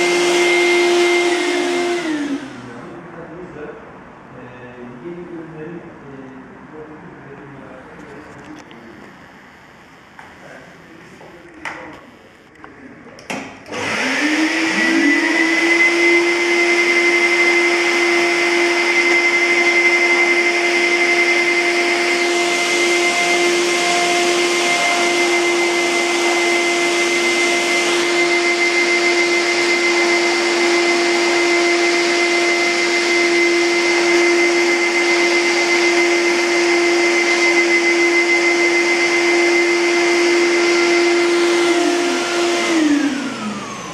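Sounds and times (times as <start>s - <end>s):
vacuum cleaner motor whining: 0.0s - 2.9s, 13.6s - 43.9s.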